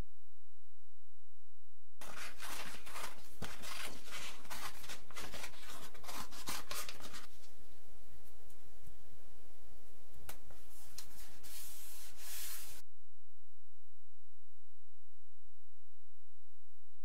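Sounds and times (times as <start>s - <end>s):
scratchy hand strokes: 2.0s - 7.4s, 10.5s - 12.8s.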